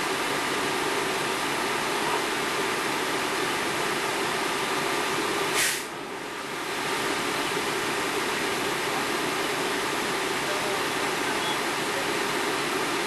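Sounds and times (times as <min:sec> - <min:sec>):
engine and pump running: 0:00.0 - 0:13.0
brief sharp hiss: 0:05.5 - 0:06.0.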